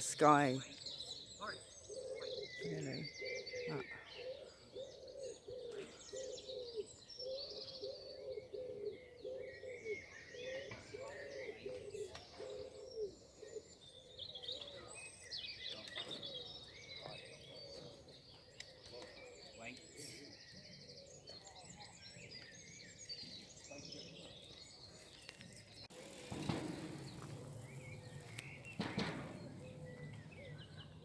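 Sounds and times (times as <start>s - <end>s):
small songbirds chirping: 0.0s - 31.0s
pigeon cooing: 1.9s - 10.0s.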